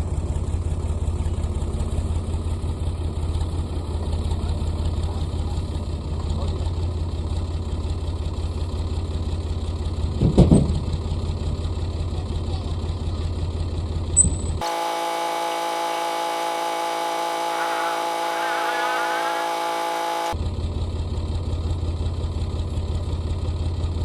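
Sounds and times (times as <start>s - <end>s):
tractor diesel engine idling: 0.0s - 10.2s, 10.8s - 24.0s
steady multi-tone hum: 14.6s - 20.4s.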